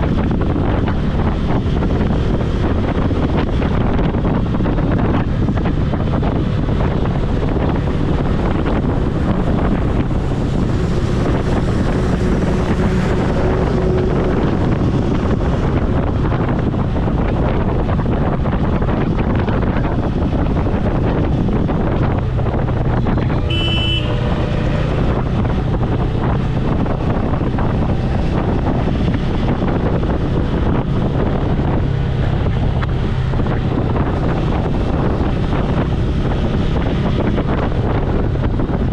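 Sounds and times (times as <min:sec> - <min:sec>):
motorcycle engine running: 0:00.0 - 0:38.9
wind rushing over microphone: 0:00.0 - 0:38.9
short horn beep: 0:23.4 - 0:24.5.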